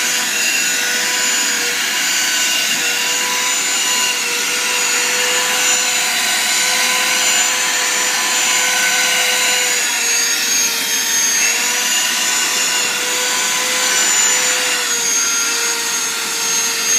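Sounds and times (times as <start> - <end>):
vacuum cleaner running: 0.0 - 16.9.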